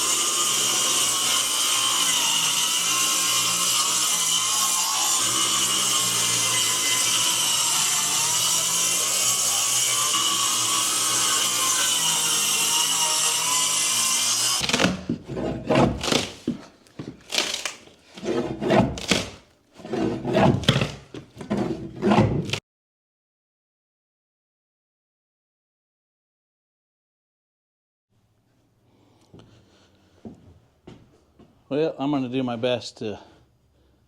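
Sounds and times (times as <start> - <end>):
power saw cutting wood: 0.0 - 16.6, 17.3 - 22.6.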